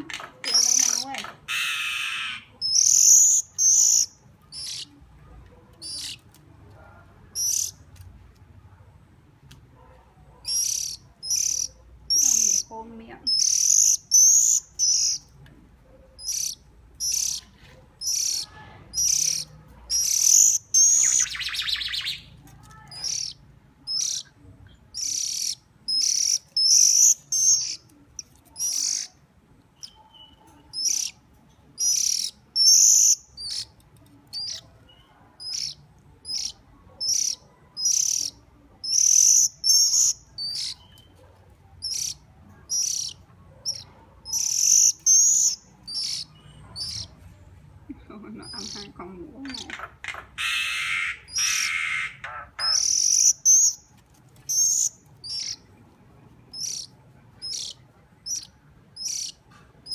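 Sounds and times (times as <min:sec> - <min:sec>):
bird chirping for food: 0:00.4 - 0:08.5, 0:10.4 - 0:15.5, 0:16.1 - 0:59.9
raspy bird call: 0:00.6 - 0:04.9, 0:50.0 - 0:53.8.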